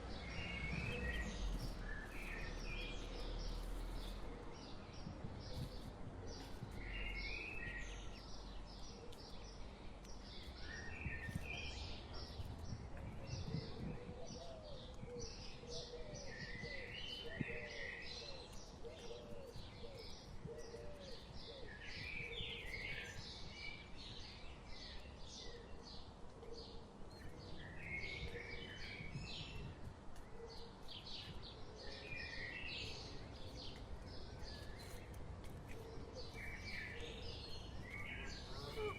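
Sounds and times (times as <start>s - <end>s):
songbirds chirping and singing: 0.0s - 38.9s
short low bird calls: 38.0s - 38.9s.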